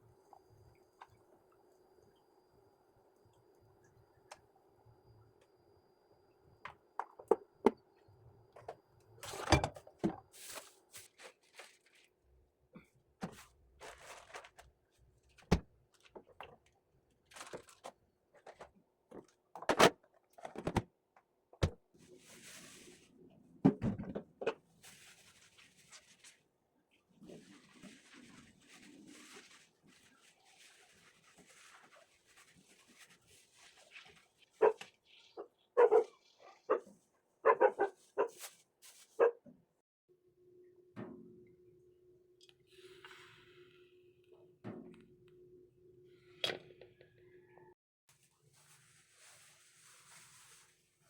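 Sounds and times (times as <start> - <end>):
short rustling and scraping: 13.3 - 14.7.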